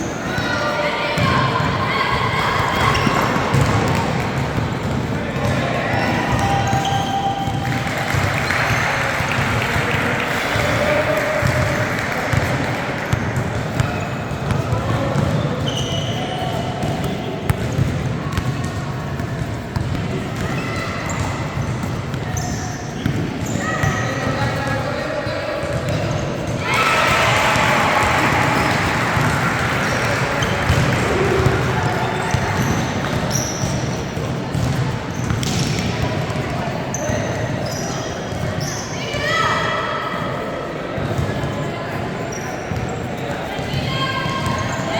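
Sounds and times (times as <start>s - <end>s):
crowd and player voices: 0.0s - 44.9s
murmur of spectators: 0.0s - 44.9s
sneaker squeaks: 0.0s - 44.9s
basketball bouncing: 2.6s - 5.6s, 11.5s - 15.9s, 16.8s - 23.9s, 30.0s - 36.6s.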